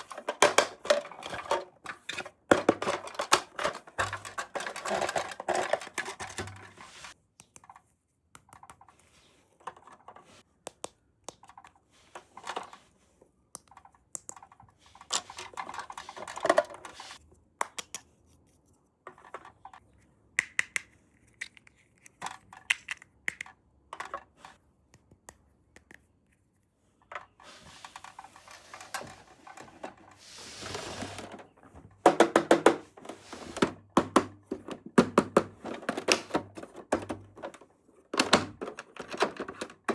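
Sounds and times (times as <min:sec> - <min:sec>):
plastic toy pieces clicking: 0:20.4 - 0:24.2.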